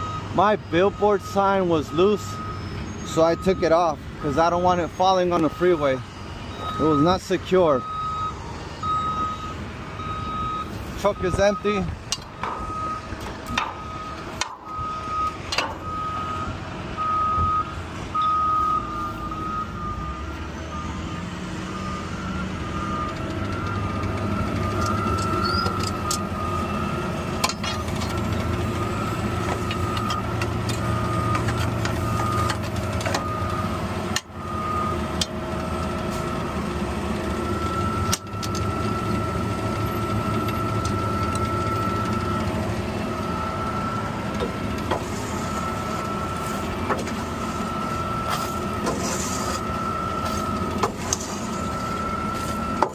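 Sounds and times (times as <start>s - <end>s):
backup alarm beeping: 0.0s - 36.6s, 37.2s - 52.9s
garbage truck diesel engine: 0.0s - 52.9s.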